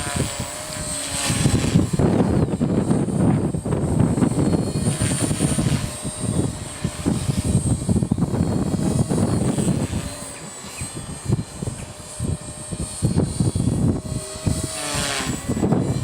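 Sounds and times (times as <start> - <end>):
rc helicopter high whine: 0.0 - 16.0
wind buffeting microphone: 0.0 - 16.0.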